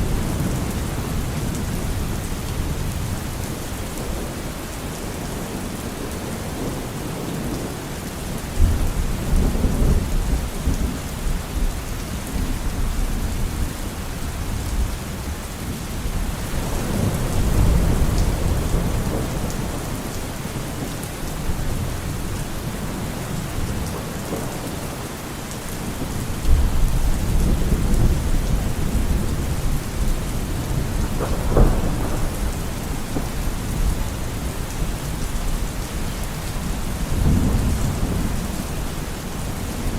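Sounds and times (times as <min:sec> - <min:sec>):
heavy rain: 0:00.0 - 0:39.9
thunder rumbling: 0:16.2 - 0:25.1, 0:25.9 - 0:39.9
sharp thunder crack: 0:31.2 - 0:33.4.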